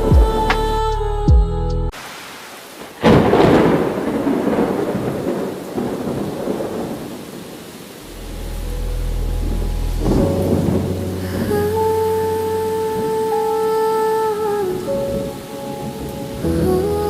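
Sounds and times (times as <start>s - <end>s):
rain falling: 1.9s - 17.0s
thunderclap: 2.8s - 7.5s, 9.4s - 11.9s
low thunder rumble: 3.0s - 13.2s.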